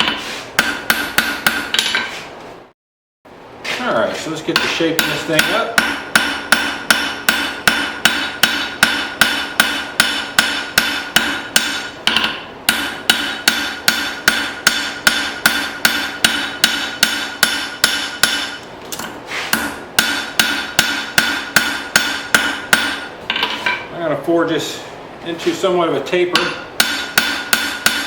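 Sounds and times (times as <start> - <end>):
hammer ringing on anvil: 4.6 - 18.6, 19.5 - 23.9, 26.3 - 28.0.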